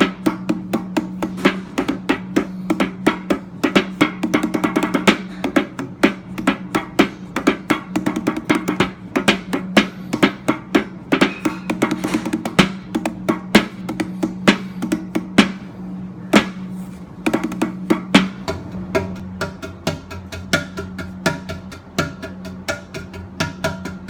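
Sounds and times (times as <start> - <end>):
rapid uneven bongo hits: 0.0 - 24.0.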